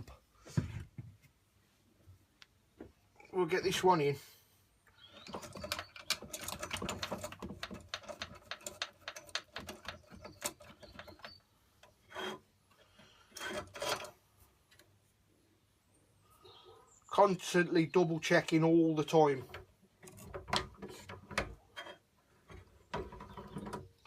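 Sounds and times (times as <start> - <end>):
clamp scraping on wood: 11.9 - 14.2.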